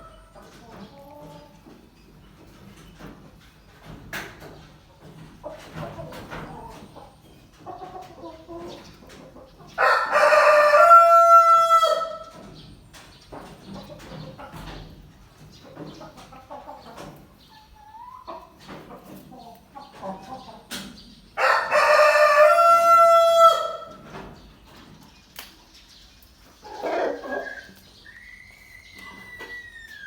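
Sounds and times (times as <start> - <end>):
rooster crowing: 9.8 - 12.2, 21.4 - 24.0
rooster clucking: 26.6 - 30.0.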